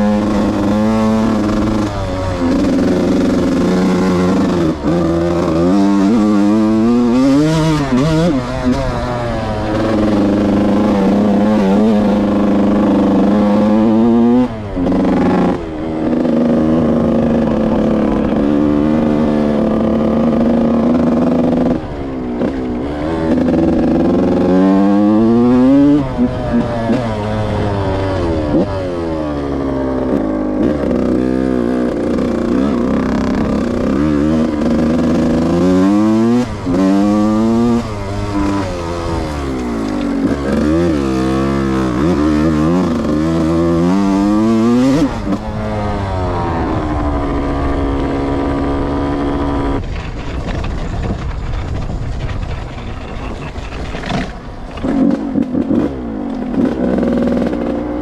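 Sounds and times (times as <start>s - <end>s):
two-stroke dirt bike engine: 0.0s - 58.0s.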